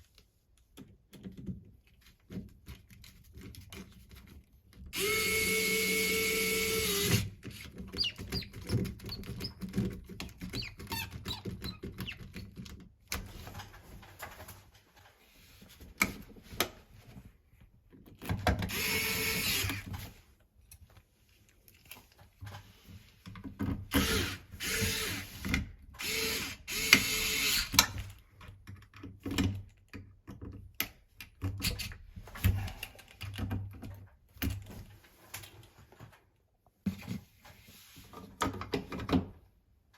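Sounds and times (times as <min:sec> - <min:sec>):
power drill motor running: 0:05.0 - 0:07.3, 0:18.7 - 0:19.8, 0:24.0 - 0:25.3, 0:26.0 - 0:27.7.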